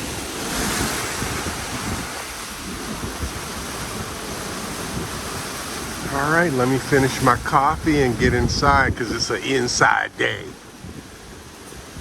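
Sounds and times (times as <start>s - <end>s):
strong gusting wind: 0.0s - 12.0s
wind buffeting microphone: 0.0s - 12.0s.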